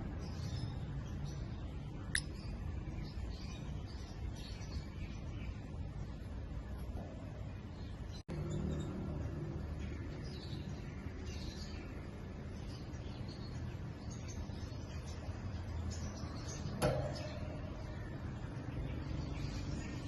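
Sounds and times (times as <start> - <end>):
sharp click: 2.1 - 2.4.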